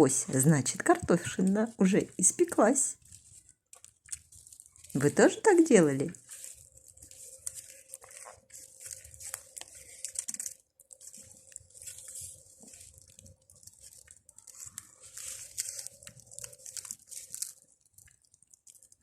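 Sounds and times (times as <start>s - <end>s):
campfire crackling and popping: 6.6s - 19.0s.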